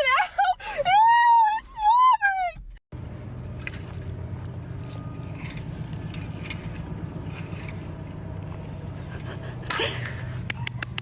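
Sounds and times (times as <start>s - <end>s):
low engine-like drone: 3.0s - 11.0s.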